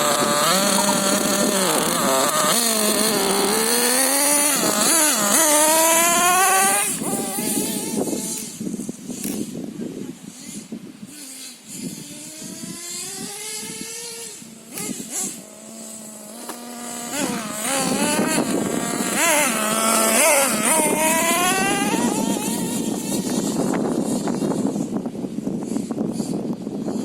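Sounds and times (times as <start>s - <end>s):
small nitro engine revving: 0.0s - 27.0s.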